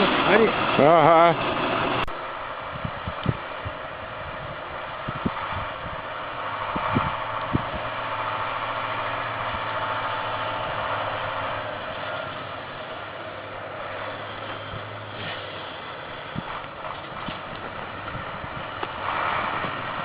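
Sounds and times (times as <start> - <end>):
truck engine running: 0.0 - 20.0.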